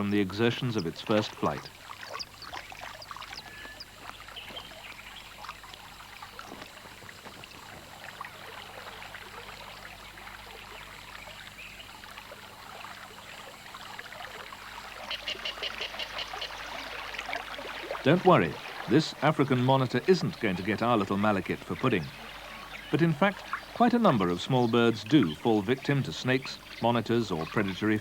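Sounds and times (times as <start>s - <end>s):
trickling running water: 0.0s - 28.0s.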